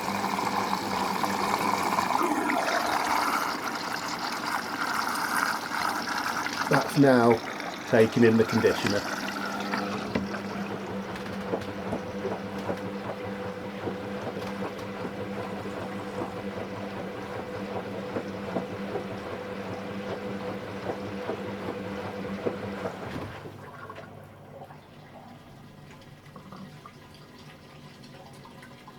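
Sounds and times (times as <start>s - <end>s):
water rushing and trickling: 0.0s - 12.1s
washing machine hum: 0.0s - 28.9s.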